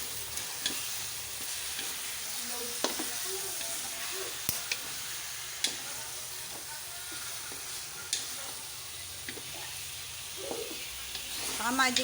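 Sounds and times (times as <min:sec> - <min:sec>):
chicken sizzling in oil: 0:00.0 - 0:12.0
spatula clicking against pan: 0:00.4 - 0:01.0, 0:04.4 - 0:04.9.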